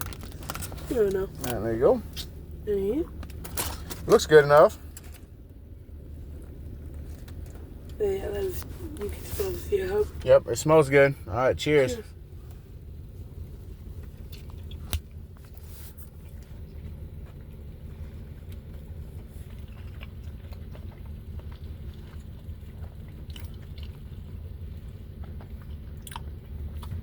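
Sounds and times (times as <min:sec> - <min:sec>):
faint crunches: 0:00.0 - 0:02.4
low steady hum: 0:00.0 - 0:27.0
people chewing food: 0:13.9 - 0:27.0.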